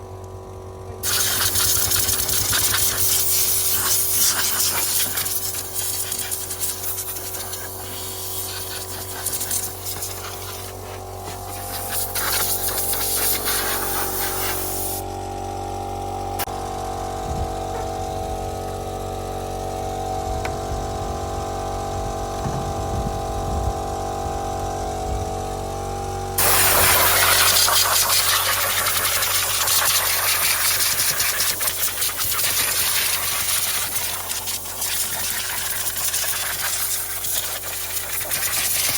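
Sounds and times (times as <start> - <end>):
steady machine hum: 0.0 - 32.2
steam cleaner jet hissing: 1.0 - 15.0, 26.4 - 38.9.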